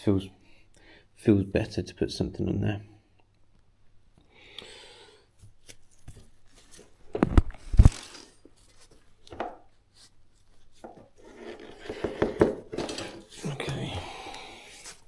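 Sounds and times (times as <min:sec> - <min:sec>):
rustling: 0:05.6 - 0:15.0.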